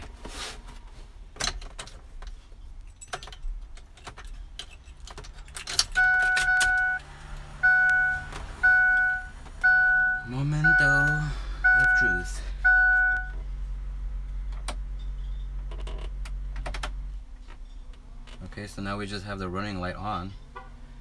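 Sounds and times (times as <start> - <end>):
keys rattling in ignition: 1.4 - 7.5.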